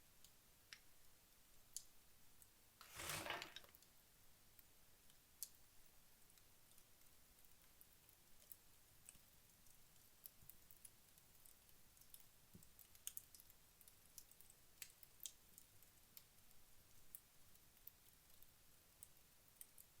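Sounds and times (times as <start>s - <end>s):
embers crackling and ticking: 6.3s - 20.0s.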